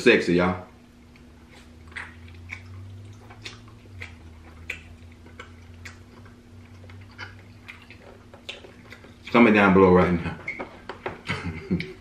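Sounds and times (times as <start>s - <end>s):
faint steady hum: 0.0s - 12.0s
man chewing with lip-smacks: 1.0s - 9.4s.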